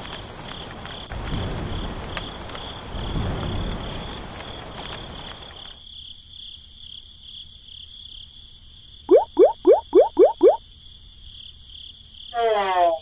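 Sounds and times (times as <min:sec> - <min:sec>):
rain hiss: 0:00.0 - 0:05.9
crickets chirping: 0:00.0 - 0:13.0.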